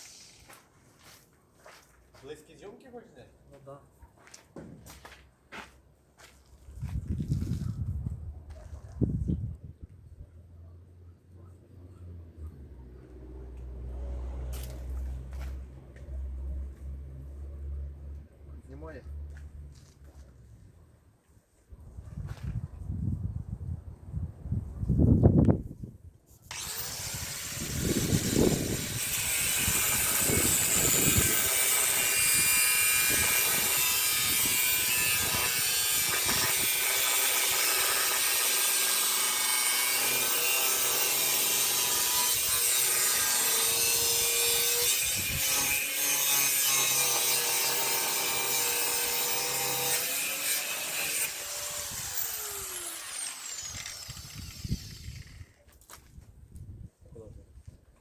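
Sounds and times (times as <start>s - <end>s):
power saw cutting: 26.5s - 55.6s.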